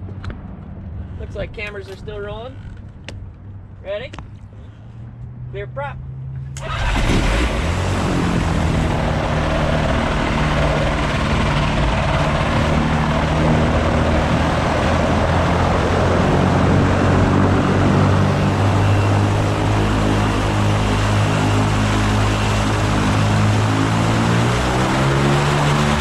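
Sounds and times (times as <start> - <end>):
engine and propeller running: 0.0 - 26.0.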